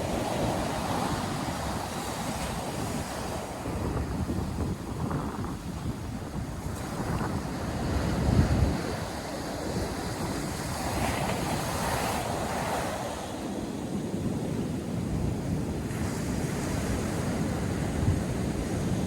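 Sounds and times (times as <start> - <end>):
ocean surf breaking on beach: 0.0 - 19.0
wind buffeting microphone: 0.0 - 19.0.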